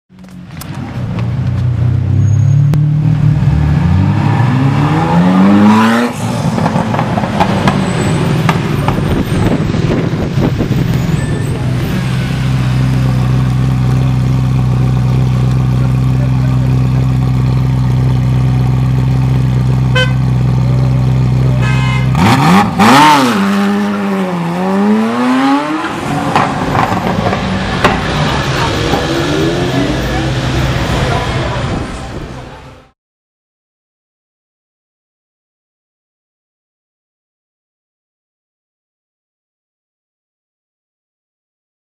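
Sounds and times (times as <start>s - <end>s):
sports car engine revving: 1.3s - 7.8s, 11.7s - 31.8s
exhaust pops: 26.3s - 29.1s.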